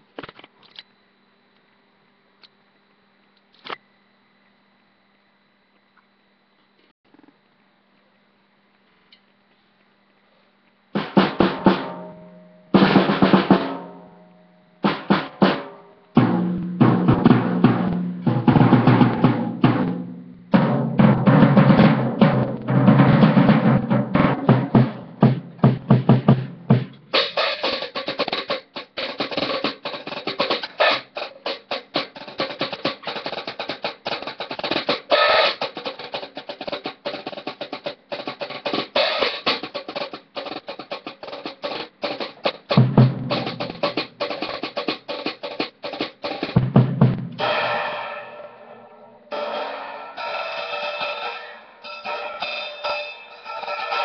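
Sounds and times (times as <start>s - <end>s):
snare and tom rolls: 11.0s - 12.2s, 12.8s - 13.9s, 14.8s - 54.0s
bass drum hits: 46.6s - 47.8s.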